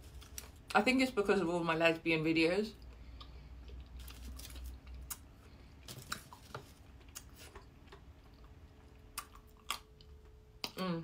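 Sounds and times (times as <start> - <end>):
chewing crispy chocolate: 2.8 - 10.2.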